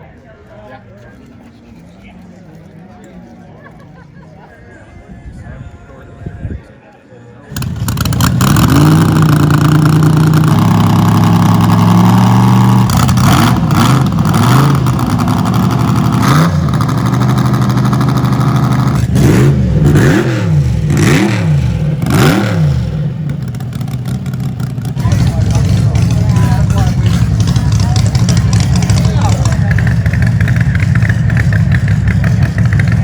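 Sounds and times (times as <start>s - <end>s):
car engine revving: 7.5s - 33.0s.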